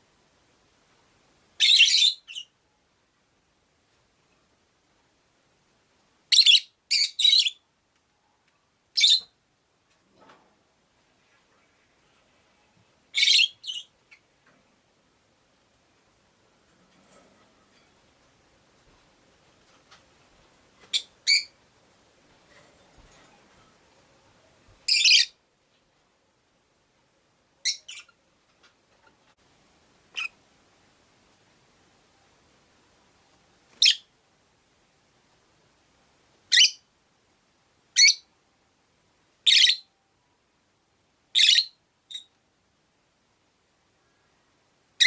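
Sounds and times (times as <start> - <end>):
lovebird chirping: 1.6 - 2.6, 6.3 - 7.7, 8.9 - 9.4, 13.1 - 14.3, 20.9 - 21.6, 24.8 - 25.4, 27.6 - 28.2, 30.1 - 30.4, 33.8 - 34.1, 36.5 - 36.9, 37.9 - 38.3, 39.4 - 39.9, 41.3 - 42.4.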